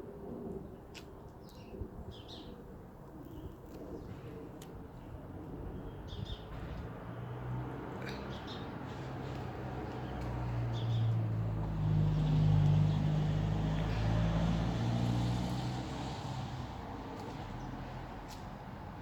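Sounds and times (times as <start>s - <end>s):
vehicle engine passing by: 6.5s - 19.0s.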